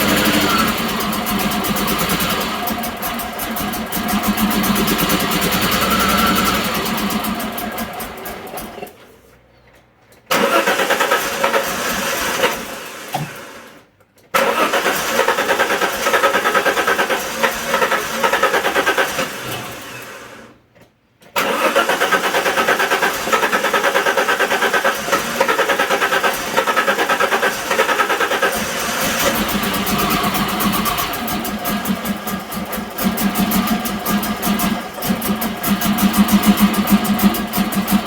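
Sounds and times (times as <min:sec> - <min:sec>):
engine cranking on starter: 0:00.0 - 0:09.1, 0:10.1 - 0:20.6, 0:21.2 - 0:38.0.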